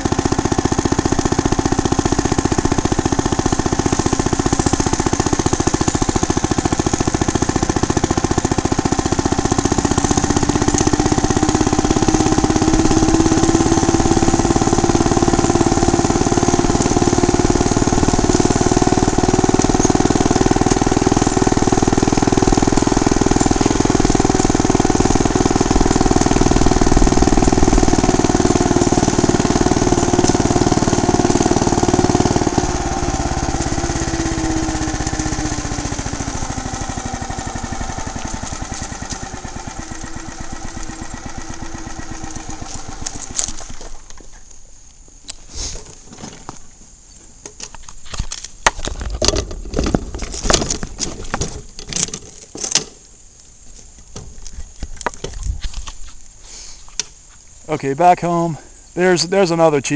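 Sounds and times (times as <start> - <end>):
small gasoline engine running: 0.0 - 45.8.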